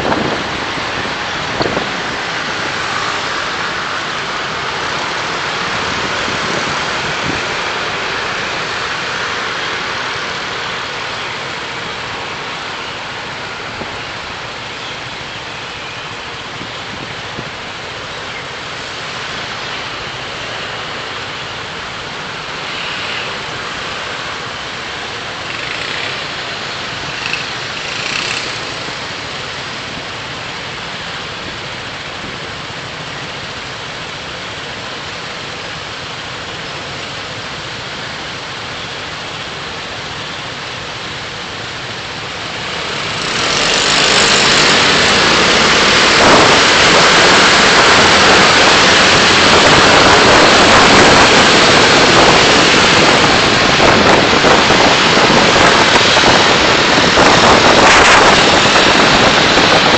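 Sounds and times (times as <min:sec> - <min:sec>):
passing vehicles: 0:00.0 - 0:59.9
tyres hissing on road: 0:00.0 - 0:59.9.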